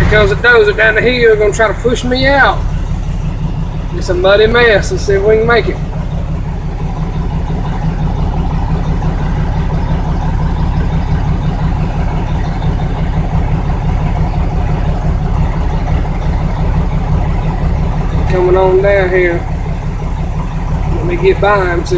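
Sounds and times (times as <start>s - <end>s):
diesel truck engine at low revs: 0.0s - 21.9s.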